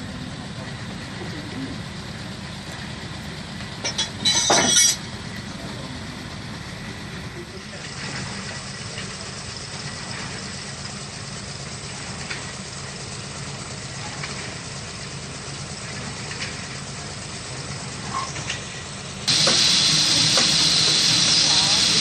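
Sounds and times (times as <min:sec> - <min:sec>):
engine humming at low speed: 0:00.0 - 0:22.0
loud hissing: 0:17.9 - 0:22.0.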